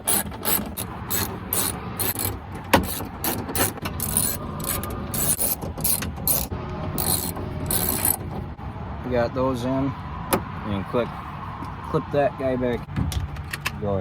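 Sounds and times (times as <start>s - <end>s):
hand ratchet wrench clicking: 0.0s - 8.2s.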